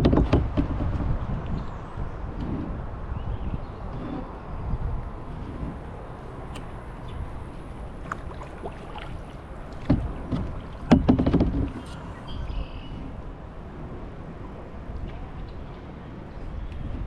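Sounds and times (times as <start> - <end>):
rush of water and wind: 0.0 - 17.0
paddle splashing in water: 3.9 - 13.4
sharp splashes and knocks: 8.0 - 12.0.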